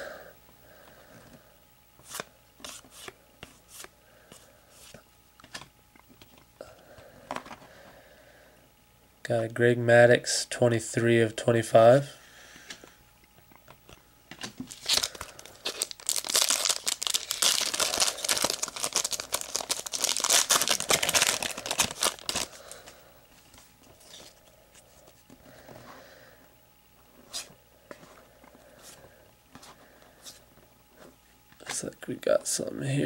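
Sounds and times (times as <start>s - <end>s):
wrapper tearing and crinkling: 14.6s - 22.8s.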